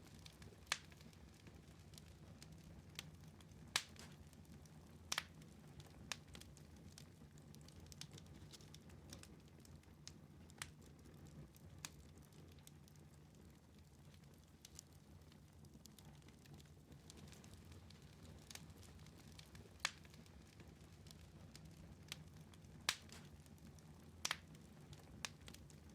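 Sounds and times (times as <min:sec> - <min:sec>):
fire crackling with pops: 0:00.0 - 0:25.9.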